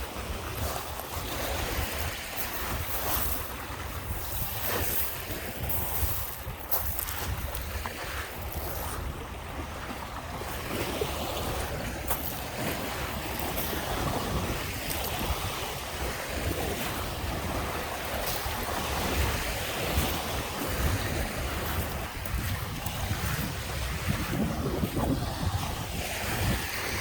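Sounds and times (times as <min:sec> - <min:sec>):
waves washing onto beach: 0:00.0 - 0:27.0
wind buffeting microphone: 0:00.0 - 0:27.0.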